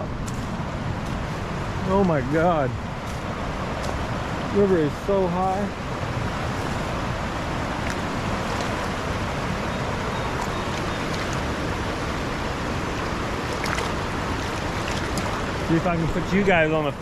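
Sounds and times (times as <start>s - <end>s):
river rushing: 0.0s - 17.0s
faint splashes: 7.6s - 12.2s, 12.9s - 16.3s.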